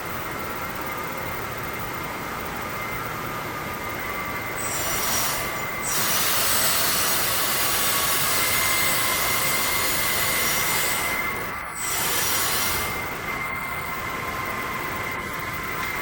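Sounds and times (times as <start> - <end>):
hydraulic whine over hiss: 3.9 - 16.0.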